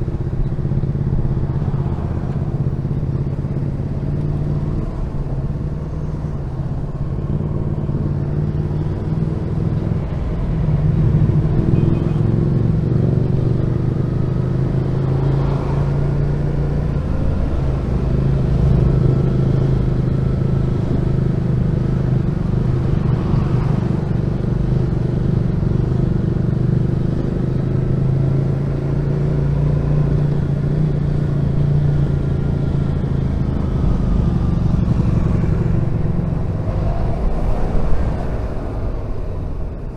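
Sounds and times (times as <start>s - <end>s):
motorcycle engine running: 30.0s - 39.9s.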